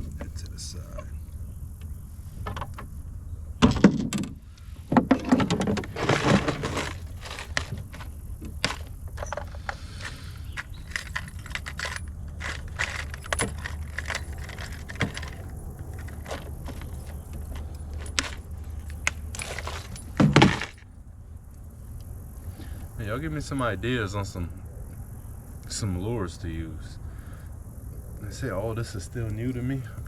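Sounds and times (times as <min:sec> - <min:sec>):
fishing tackle metallic clinks: 0:08.6 - 0:20.8.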